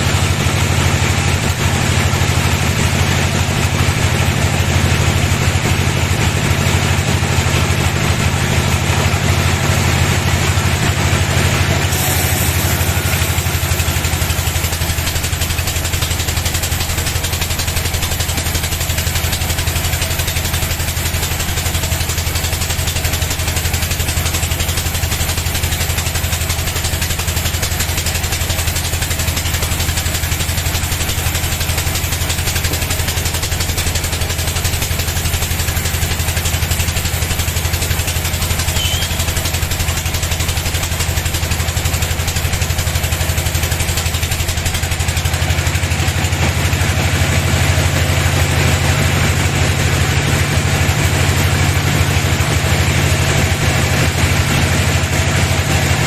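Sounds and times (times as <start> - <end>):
bandsaw machinery humming: 0.0 - 56.0
bright hiss: 11.9 - 13.4.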